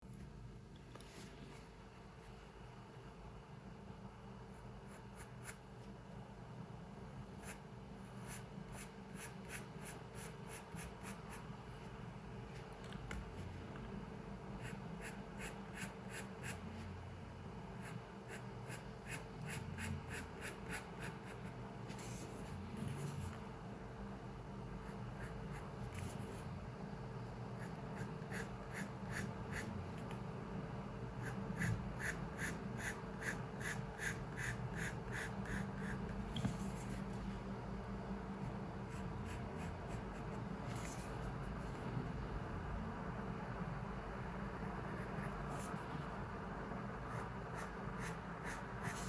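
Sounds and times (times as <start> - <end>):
low room hum: 0.0 - 49.0
pencil drawing on paper: 7.3 - 11.5, 14.5 - 17.0, 17.7 - 23.4, 24.8 - 26.6, 27.5 - 30.1, 31.2 - 37.2, 38.8 - 41.8, 47.0 - 49.0.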